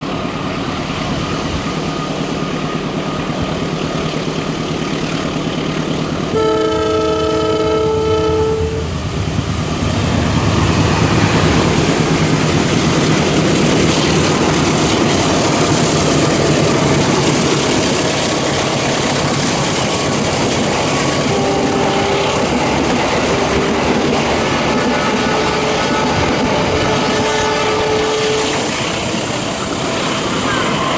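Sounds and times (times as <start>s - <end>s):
train horn chord: 6.3s - 9.1s, 21.2s - 24.2s, 24.9s - 28.7s
train wheels clattering on rails: 9.0s - 30.9s.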